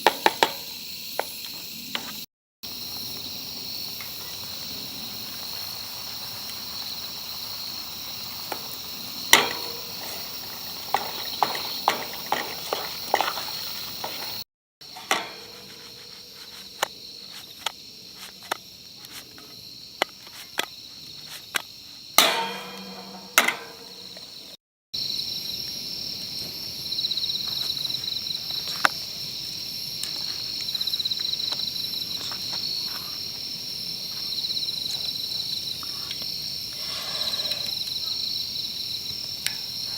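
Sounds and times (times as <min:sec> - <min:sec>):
crickets and insects chirping: 0:00.0 - 0:39.9
ringing metal clank: 0:09.4 - 0:10.3, 0:15.0 - 0:15.8, 0:22.2 - 0:24.2.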